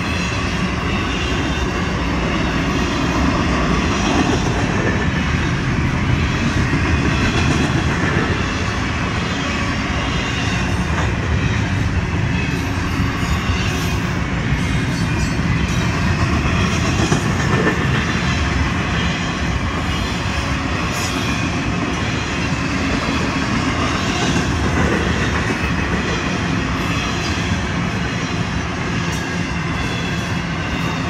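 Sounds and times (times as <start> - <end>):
freight train wheels rumbling: 0.0 - 31.0
train knocks: 10.4 - 20.0.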